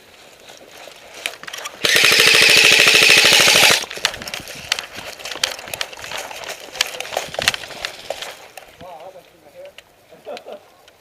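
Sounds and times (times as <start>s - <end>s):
airsoft gun full-auto burst: 1.8s - 3.9s.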